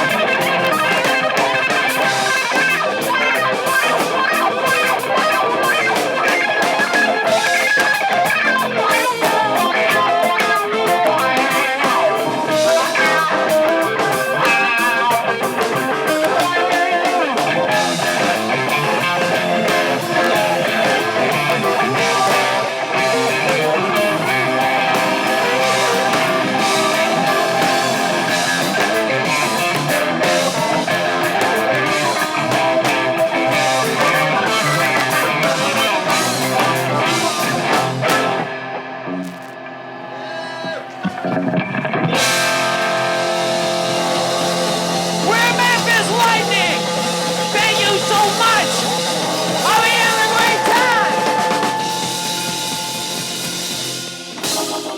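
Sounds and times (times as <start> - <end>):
electric guitar bent notes: 0.0 - 54.9
live rock band playing: 0.0 - 54.9.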